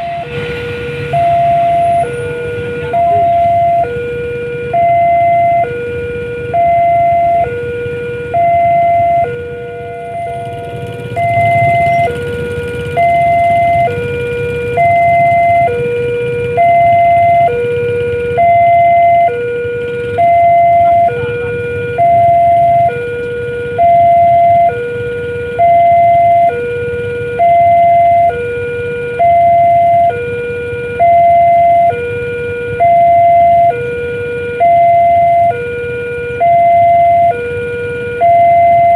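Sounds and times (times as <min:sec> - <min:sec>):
low rumble: 0:00.0 - 0:24.7
level crossing two-tone alarm: 0:00.0 - 0:38.9.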